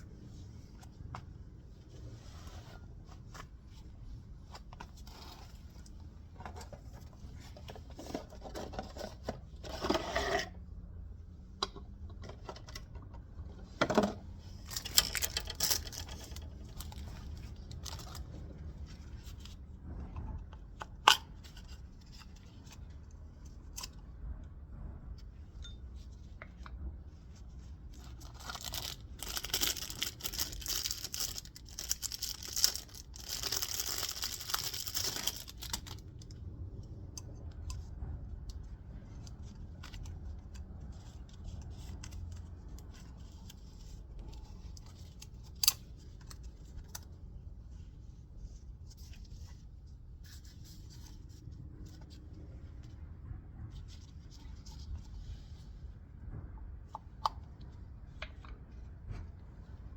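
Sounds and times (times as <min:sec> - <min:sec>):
low steady hum: 0:00.0 - 0:59.9
scraping and rustling of parts: 0:13.6 - 0:19.6, 0:27.4 - 0:36.3.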